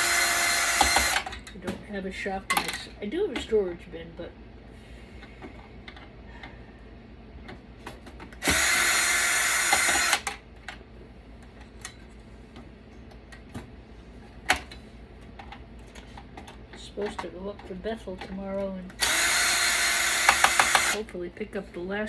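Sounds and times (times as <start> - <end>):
power drill running: 0.0 - 1.3, 8.4 - 10.4, 18.9 - 21.1.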